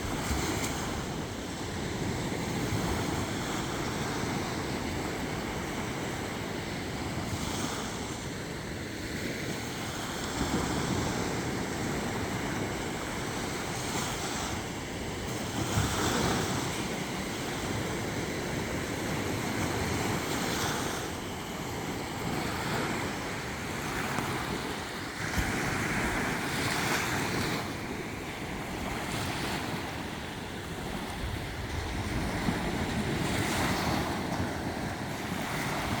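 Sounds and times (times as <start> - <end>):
sea waves breaking on shore: 0.0 - 36.0
wind buffeting microphone: 10.0 - 36.0.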